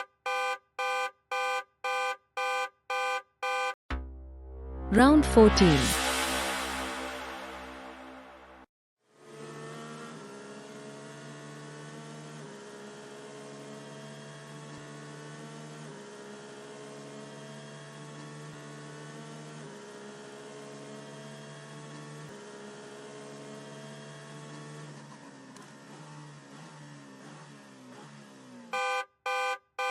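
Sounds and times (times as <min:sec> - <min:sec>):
synthesizer music with held chords: 0:03.9 - 0:08.7.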